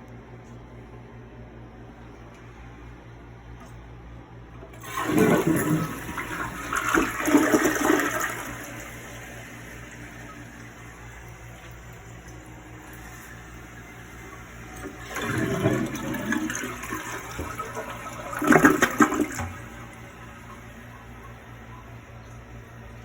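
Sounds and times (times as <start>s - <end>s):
toilet flushing: 4.6s - 23.0s.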